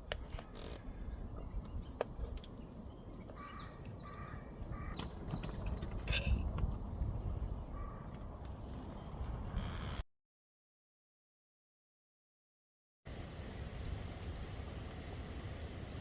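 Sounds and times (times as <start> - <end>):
small birds chirping: 0.2 - 8.7
crow cawing: 3.4 - 5.0, 7.8 - 8.1
low outdoor rumble: 13.1 - 16.0.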